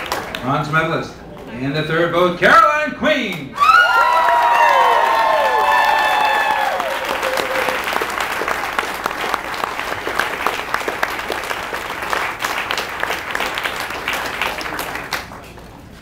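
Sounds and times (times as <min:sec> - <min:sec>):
crowd clapping: 0:00.0 - 0:00.8, 0:03.6 - 0:16.0
crowd cheering: 0:03.6 - 0:15.4.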